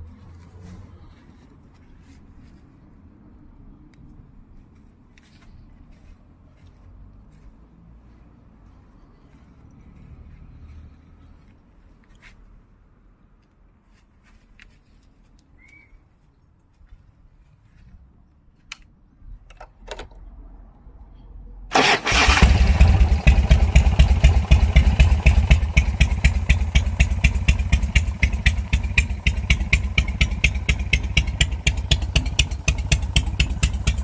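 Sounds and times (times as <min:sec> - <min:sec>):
motorcycle engine starting and idling: 0:21.7 - 0:34.0.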